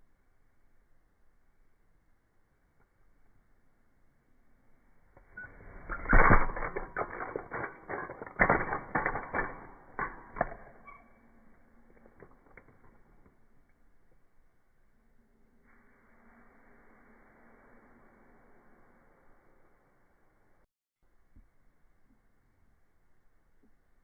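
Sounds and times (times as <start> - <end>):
clattering and knocking: 5.9 - 11.1.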